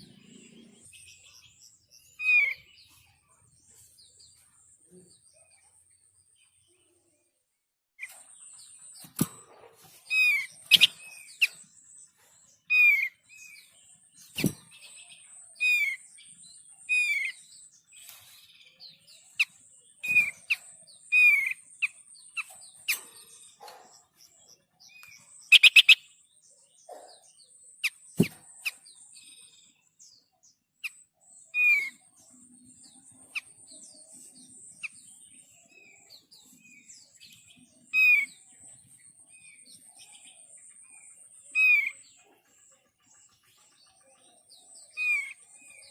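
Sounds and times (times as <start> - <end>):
bird chirps: 0.0 - 45.9
high thin bird trill: 8.0 - 16.1, 25.0 - 26.1.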